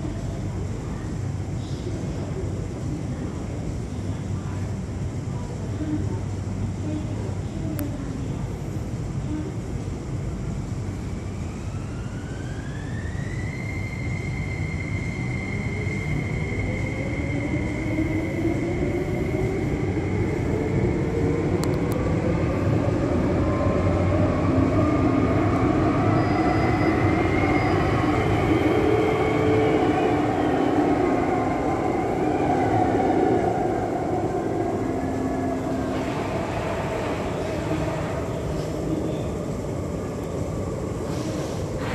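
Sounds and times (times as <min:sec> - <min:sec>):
train rumble: 0:00.0 - 0:41.9.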